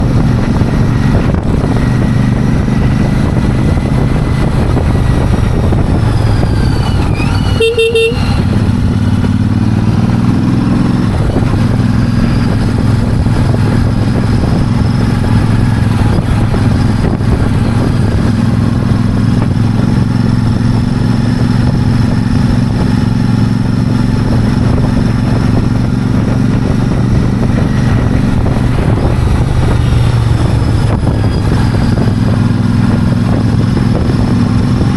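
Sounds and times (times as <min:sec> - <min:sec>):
motorcycle engine running: 0:00.0 - 0:34.9
horn toot: 0:06.9 - 0:08.5.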